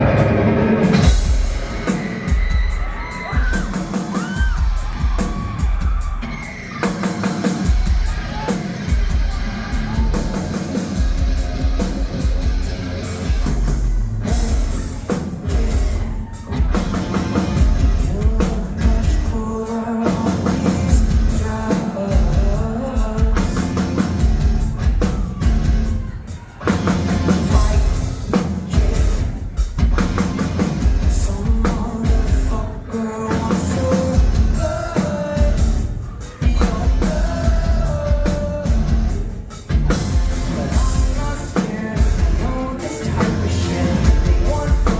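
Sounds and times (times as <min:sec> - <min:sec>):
live rock band playing: 0:00.0 - 0:44.9
person singing: 0:14.3 - 0:24.0, 0:27.3 - 0:29.5, 0:31.0 - 0:44.9.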